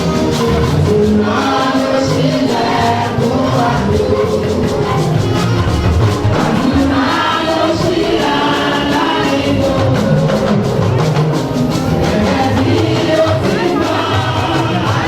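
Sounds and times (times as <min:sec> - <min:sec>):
choir and congregation singing: 0:00.0 - 0:15.0
steady percussion: 0:00.0 - 0:15.0.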